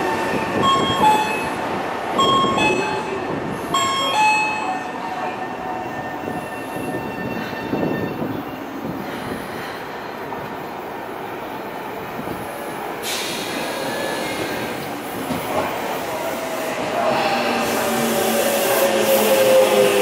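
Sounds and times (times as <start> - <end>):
electric train pulling in: 12.4 - 20.0.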